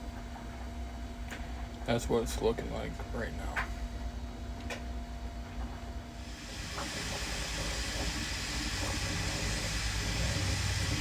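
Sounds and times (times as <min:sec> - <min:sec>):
low machine hum: 0:00.0 - 0:11.0
broad even hiss: 0:06.2 - 0:11.0.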